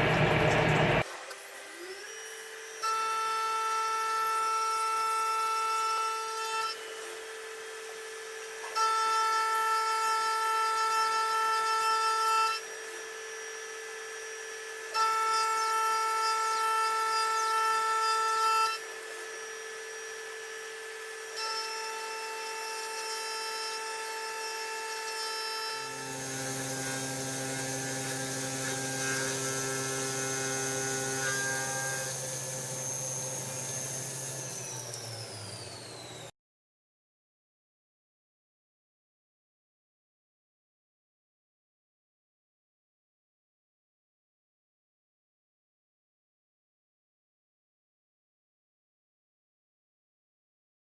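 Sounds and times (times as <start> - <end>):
machine low hum: 0.0 - 1.0, 25.8 - 36.3
high-pitched milling tones: 9.0 - 36.2.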